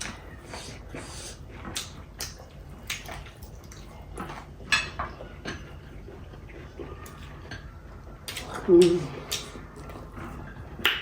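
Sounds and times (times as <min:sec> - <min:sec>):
chewing smacks: 0:00.0 - 0:04.6, 0:08.2 - 0:11.0.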